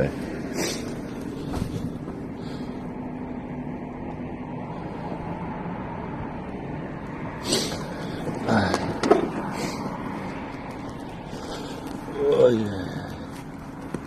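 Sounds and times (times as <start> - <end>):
faint steady hum: 0.0 - 14.0
wind rumble on microphone: 1.3 - 2.4.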